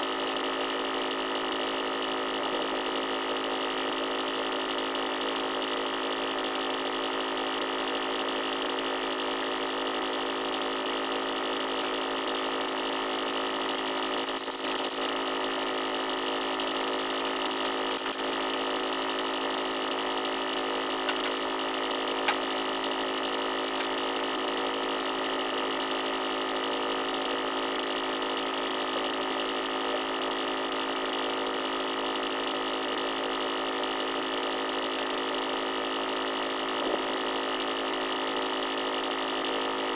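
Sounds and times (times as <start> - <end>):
sharp clicks: 13.6 - 15.4, 16.0 - 18.4, 21.1 - 21.4
high hiss bursts: 13.6 - 18.5
machinery drone: 13.6 - 18.5.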